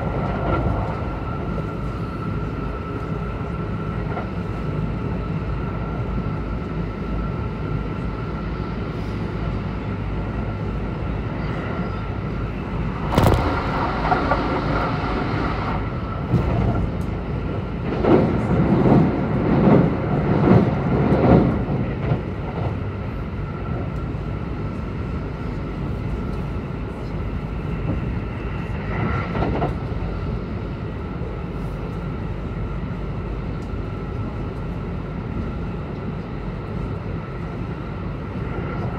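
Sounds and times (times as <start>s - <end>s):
train wheels rumbling on rails: 0.0s - 38.9s
rhythmic train clattering: 9.2s - 38.9s
sharp bang: 13.0s - 16.0s.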